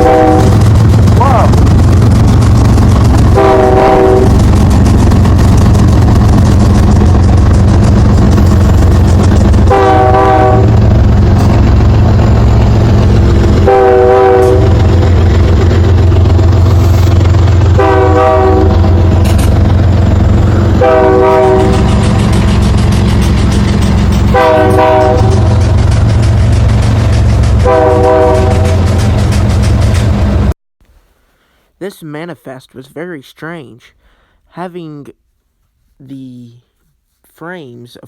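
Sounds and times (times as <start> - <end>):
train horn blasts: 0.0 - 0.7, 3.3 - 4.4, 9.6 - 10.9, 13.6 - 15.0, 17.7 - 19.3, 20.7 - 22.0, 24.3 - 25.7, 27.6 - 29.0
freight train rumbling: 0.0 - 30.6.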